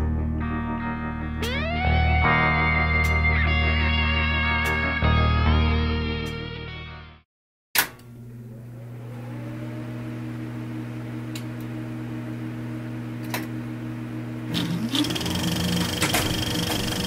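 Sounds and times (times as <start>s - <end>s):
low held tones: 1.4s - 4.1s
motor humming: 8.1s - 17.0s.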